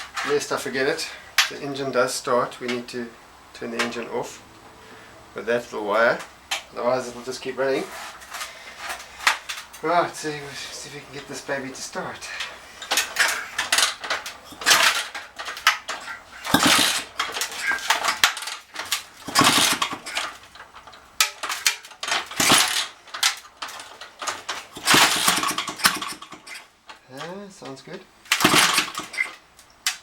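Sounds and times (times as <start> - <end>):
scooter engine kick-started: 12.2 - 26.7, 28.2 - 30.0.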